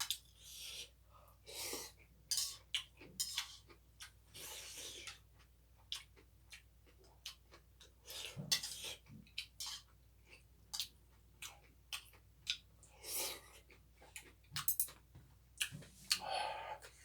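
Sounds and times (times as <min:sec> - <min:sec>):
chewing: 0:02.4 - 0:15.0, 0:15.6 - 0:17.0
cutlery clicking against dishes: 0:14.6 - 0:15.0.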